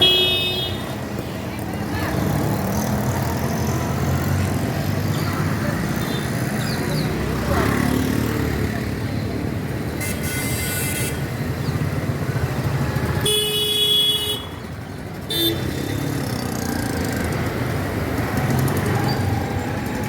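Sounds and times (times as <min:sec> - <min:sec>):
vehicle horns honking: 0:00.0 - 0:01.0, 0:10.0 - 0:11.4, 0:13.2 - 0:14.6, 0:15.3 - 0:16.1
road traffic: 0:00.0 - 0:20.0.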